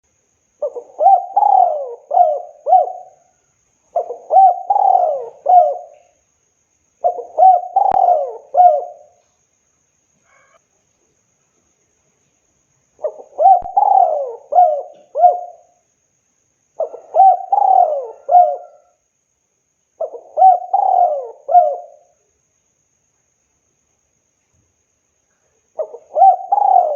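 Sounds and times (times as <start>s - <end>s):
dove cooing: 0.6s - 3.3s, 3.9s - 6.2s, 7.0s - 9.2s, 13.0s - 15.8s, 16.8s - 19.0s, 20.0s - 22.1s, 25.8s - 26.9s.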